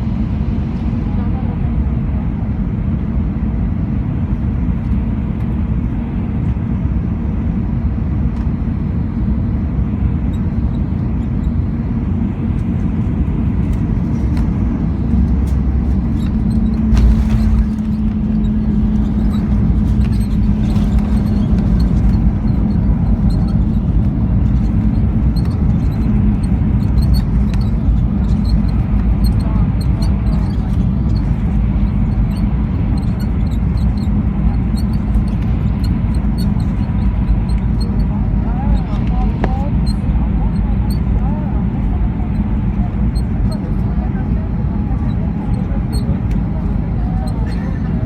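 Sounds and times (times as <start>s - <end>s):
jet engines running at low power: 0.0s - 48.0s
low hum: 10.3s - 47.1s.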